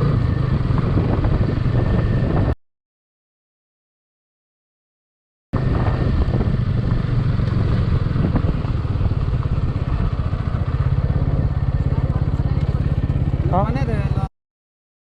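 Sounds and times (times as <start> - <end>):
motorcycle engine running: 0.0 - 2.6, 5.6 - 14.3.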